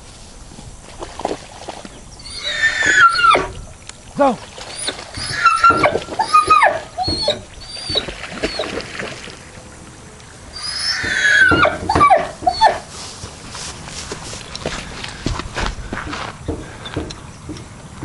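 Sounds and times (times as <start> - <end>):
animal squeals and chirps: 2.2 - 3.5, 4.7 - 8.8, 10.5 - 12.8.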